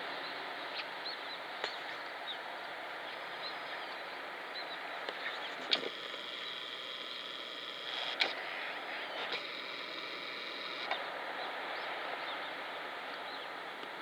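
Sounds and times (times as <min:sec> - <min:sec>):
camera lens motor whirring: 0:05.6 - 0:11.0.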